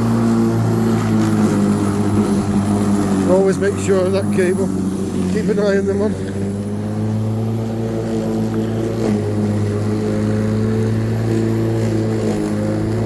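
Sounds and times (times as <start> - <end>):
electric lawnmower running: 0.0 - 13.0.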